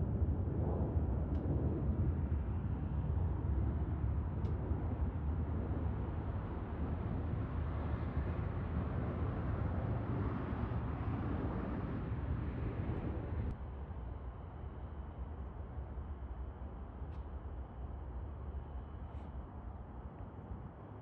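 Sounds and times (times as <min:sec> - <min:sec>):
jet engines rumbling: 0:00.0 - 0:13.6.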